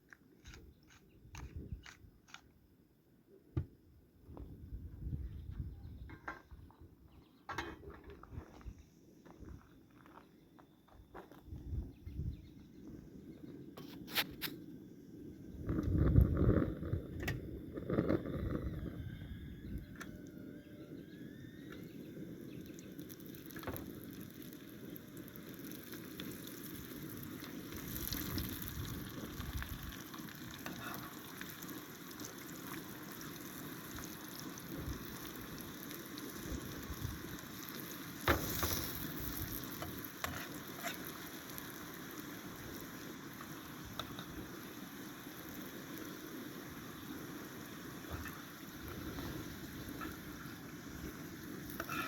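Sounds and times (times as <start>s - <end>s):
food sizzling in a pan: 22.2s - 52.0s.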